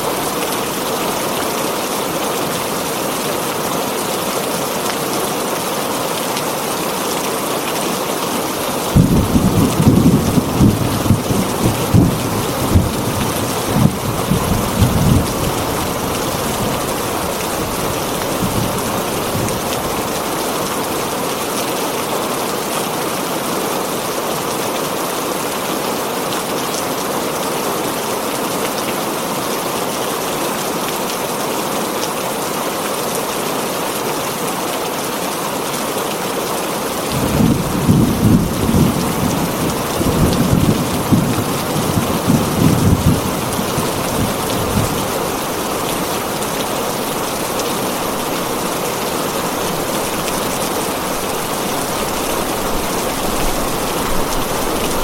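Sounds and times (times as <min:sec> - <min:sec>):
heavy rain on a tin roof: 0:00.0 - 0:55.0
thunder rumbling: 0:09.0 - 0:16.8, 0:37.2 - 0:45.2.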